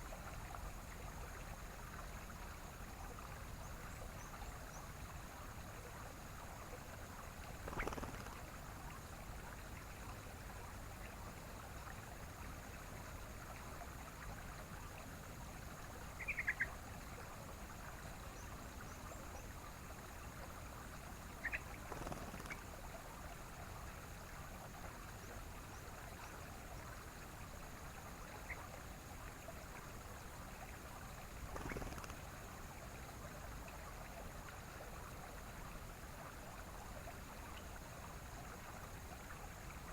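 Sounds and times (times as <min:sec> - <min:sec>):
bulbul calls: 0:07.6 - 0:08.4, 0:16.2 - 0:16.8, 0:21.4 - 0:22.7, 0:31.5 - 0:32.2.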